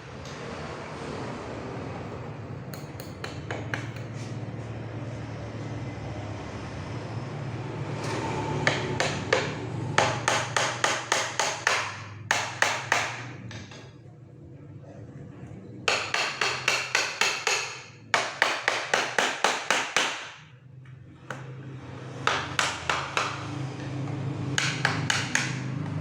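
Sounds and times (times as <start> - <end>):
hammer nailing wooden crate: 8.6 - 13.8, 15.9 - 20.4, 22.2 - 23.5, 24.6 - 25.7.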